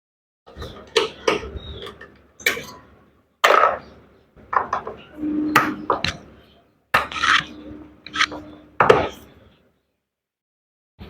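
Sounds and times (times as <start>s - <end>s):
short steady hum: 5.0s - 9.4s.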